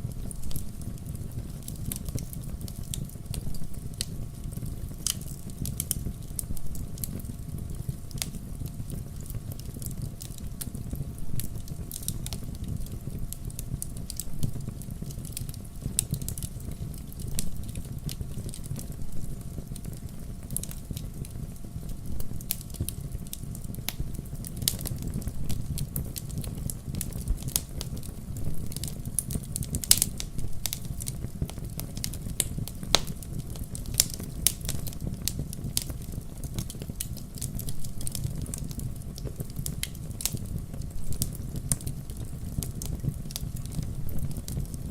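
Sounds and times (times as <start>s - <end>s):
log fire crackling and popping: 0.0s - 44.9s.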